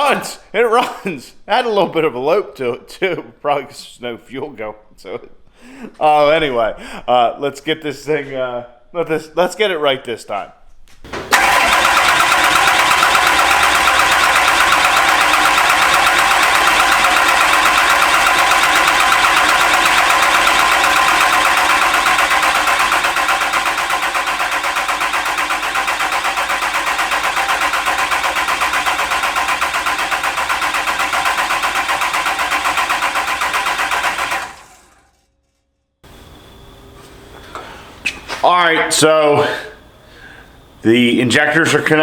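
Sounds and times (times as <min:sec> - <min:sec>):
starter cranking diesel engine: 0:11.1 - 0:35.3.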